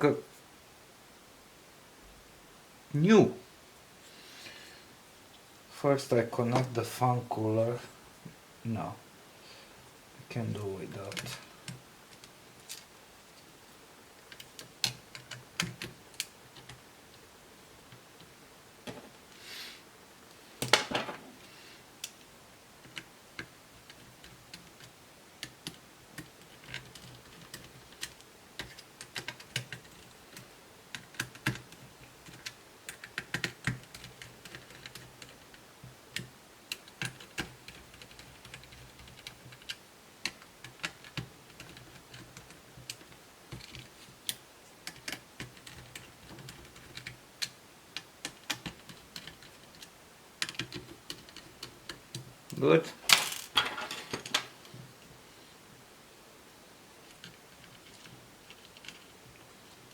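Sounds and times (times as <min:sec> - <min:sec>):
laptop parts clicking and tapping: 0:14.3 - 0:16.8, 0:22.8 - 0:52.3.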